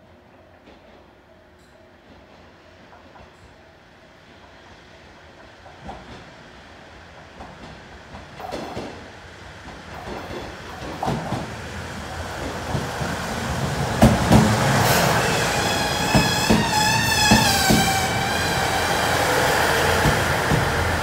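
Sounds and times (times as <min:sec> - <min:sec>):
diesel railcar rumble: 0:09.5 - 0:21.0
wheels clacking over rail joints: 0:09.6 - 0:11.6, 0:12.4 - 0:21.0
wavering brake squeal: 0:15.2 - 0:18.8.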